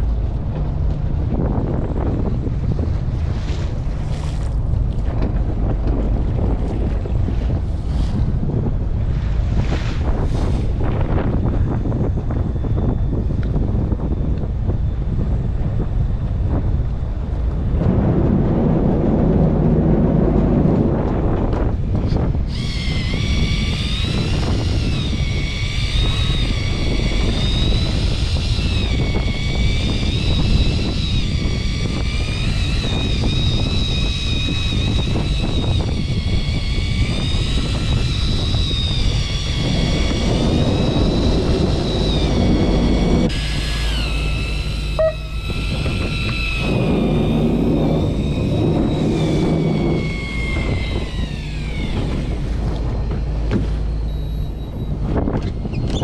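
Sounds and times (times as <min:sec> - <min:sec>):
boat engine low rumble: 0:00.0 - 0:56.0
high-pitched whine: 0:09.6 - 0:56.0.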